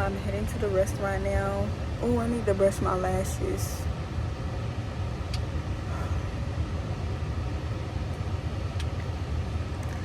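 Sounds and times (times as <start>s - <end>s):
faint clicks: 5.3s - 5.5s, 8.7s - 9.1s.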